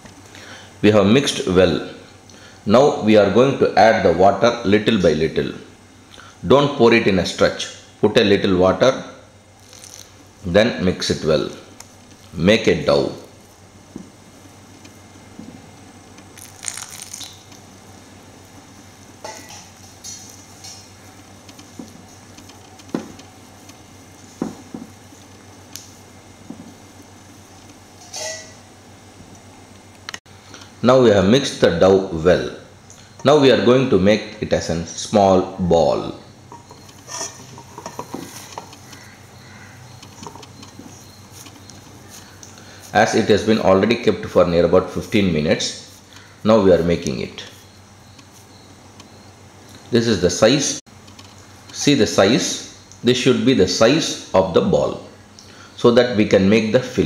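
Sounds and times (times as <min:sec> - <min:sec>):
hands working dough: 0:36.6 - 0:48.5.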